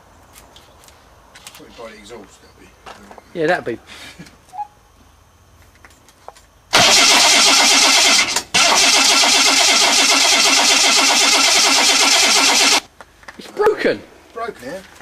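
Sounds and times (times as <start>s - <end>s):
engine cranking on starter: 6.7s - 12.9s.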